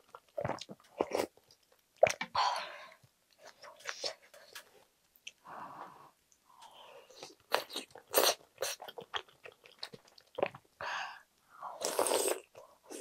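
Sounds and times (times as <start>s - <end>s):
chewing soft dumpling: 6.6s - 10.8s.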